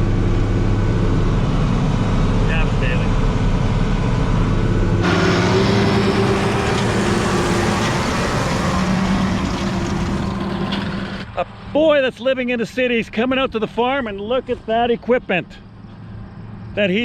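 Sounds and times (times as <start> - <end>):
tractor engine running: 0.0 - 11.7.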